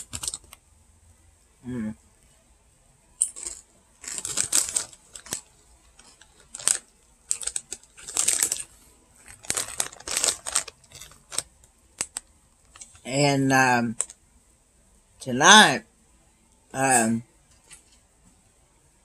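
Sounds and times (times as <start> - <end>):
potato chips crunching: 3.2 - 12.9.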